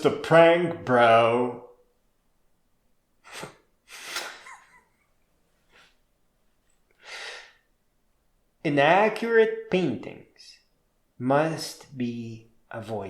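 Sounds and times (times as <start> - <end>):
person's sharp bursts of breath: 3.2 - 4.5, 7.0 - 7.7.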